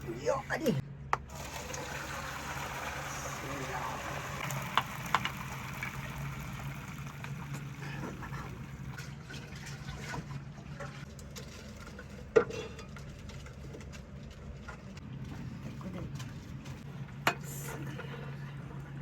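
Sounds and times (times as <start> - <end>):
water running and splashing: 1.3 - 10.3.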